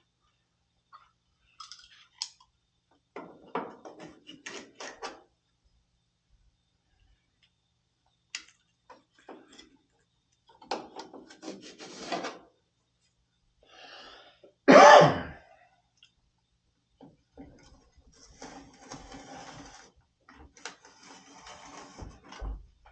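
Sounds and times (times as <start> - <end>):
person clearing throat: 14.7 - 15.4.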